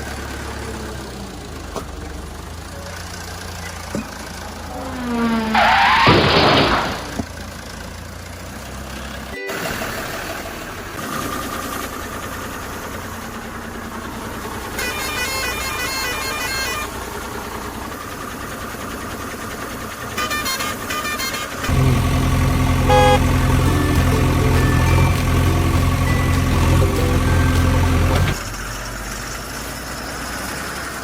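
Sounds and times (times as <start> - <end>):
vehicle engine running: 0.0 - 5.2, 10.4 - 14.8, 21.7 - 30.3
rapid horn toots: 21.5 - 28.4.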